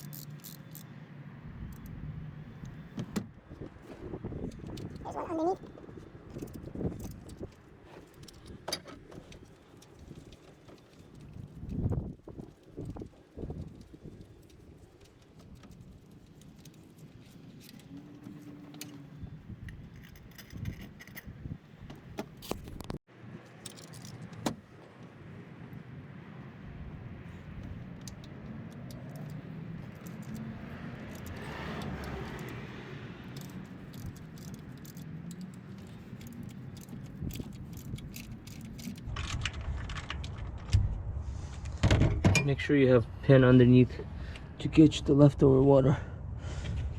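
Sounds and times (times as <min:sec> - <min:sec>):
metal tools clinking and rattling: 0:28.0 - 0:39.4
low hum: 0:39.0 - 0:42.4.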